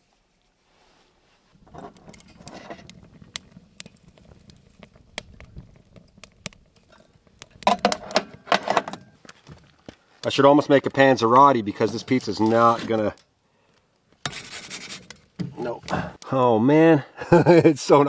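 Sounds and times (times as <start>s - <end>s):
wood fire crackling: 0.0s - 18.0s
rustling scraping burst: 14.2s - 15.3s.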